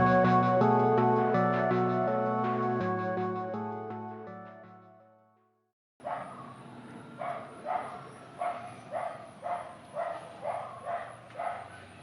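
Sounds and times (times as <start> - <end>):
animal barking: 6.0 - 6.6, 7.2 - 11.9.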